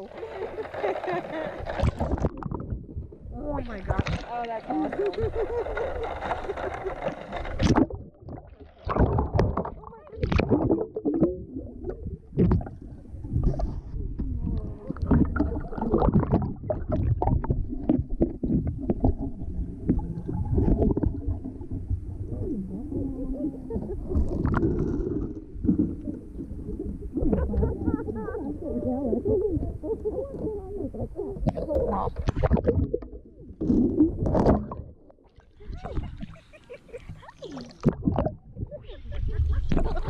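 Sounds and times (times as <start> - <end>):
pool water sloshing and splashing: 0.0 - 40.0
indistinct voices: 3.3 - 7.6, 22.3 - 32.3.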